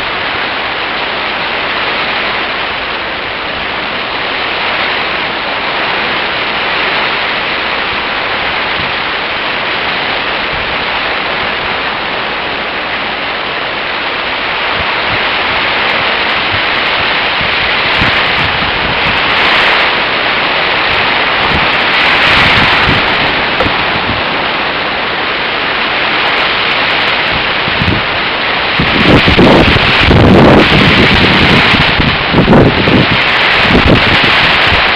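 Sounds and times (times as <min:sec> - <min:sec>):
wind and rain rushing: 0:00.0 - 0:34.9
wind buffeting microphone: 0:00.0 - 0:34.9.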